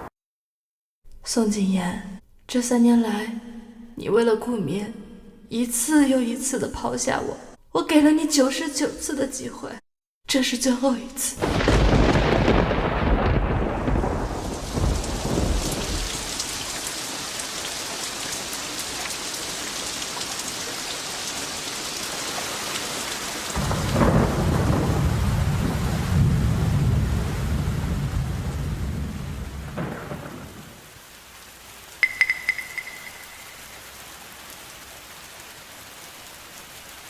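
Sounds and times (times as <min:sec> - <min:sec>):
thunder rumbling: 0:11.4 - 0:17.2, 0:23.5 - 0:31.0
heavy rain falling: 0:11.4 - 0:37.0.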